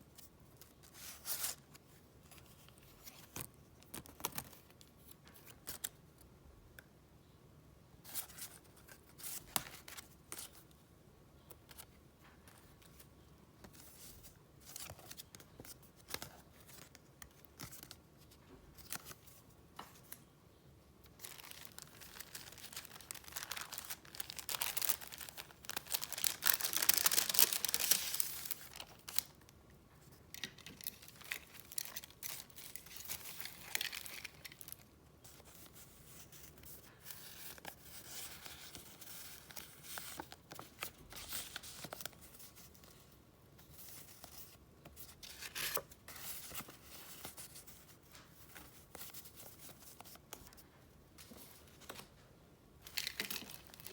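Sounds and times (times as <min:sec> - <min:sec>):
paper rustling and crinkling: 0:21.0 - 0:52.2, 0:52.8 - 0:53.9.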